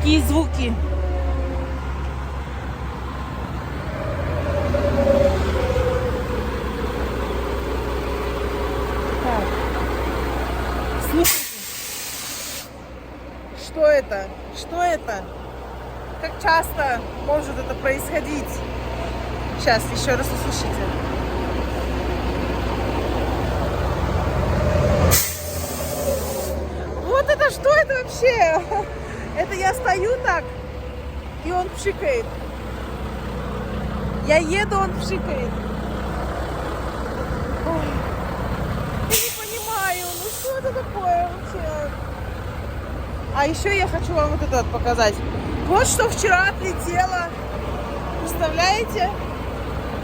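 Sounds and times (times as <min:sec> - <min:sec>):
diesel truck idling: 0:00.0 - 0:50.0
compressed air hiss: 0:11.2 - 0:12.8, 0:25.1 - 0:26.6, 0:39.1 - 0:40.6.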